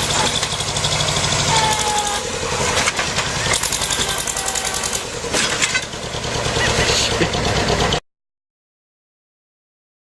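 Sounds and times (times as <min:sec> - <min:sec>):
heavy vehicle engine running: 0:00.0 - 0:08.0
rough clattering: 0:02.6 - 0:06.2.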